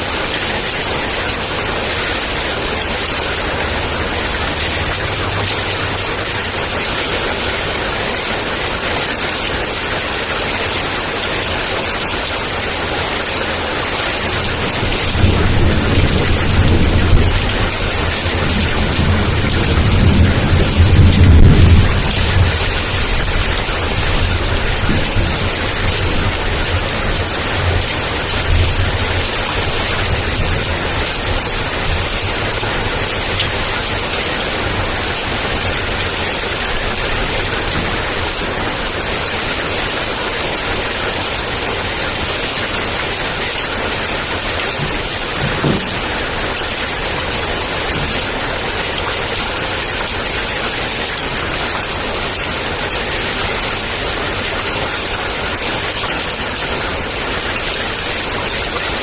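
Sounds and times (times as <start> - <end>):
heavy rain falling: 0.0 - 59.0
thunder rolling: 14.2 - 41.6, 42.8 - 49.4.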